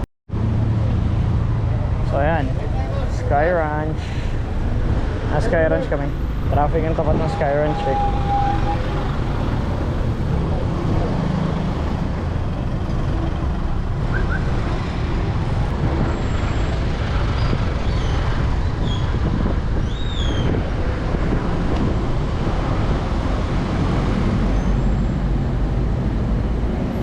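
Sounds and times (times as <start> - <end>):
slow road traffic: 0.0 - 27.0
wind buffeting microphone: 6.1 - 27.0.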